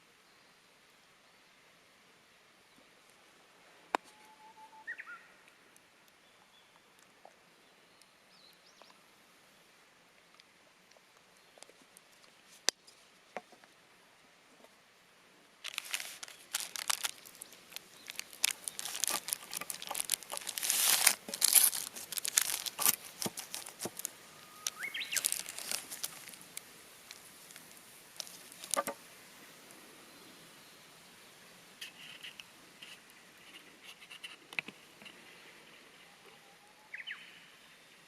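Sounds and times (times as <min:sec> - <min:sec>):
faint clicks: 0:10.2 - 0:13.0
parchment paper crinkling: 0:15.6 - 0:29.0.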